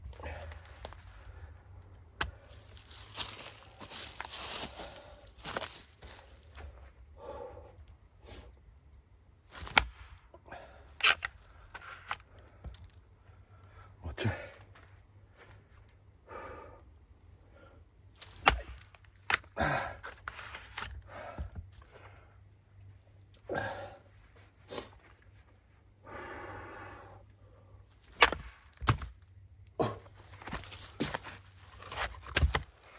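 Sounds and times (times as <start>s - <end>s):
blade chopping firewood: 9.6s - 10.2s, 18.2s - 20.9s, 28.0s - 29.2s, 29.8s - 32.9s
wood splitting crack: 9.6s - 10.2s, 18.2s - 19.6s, 28.1s - 29.2s, 30.4s - 32.9s.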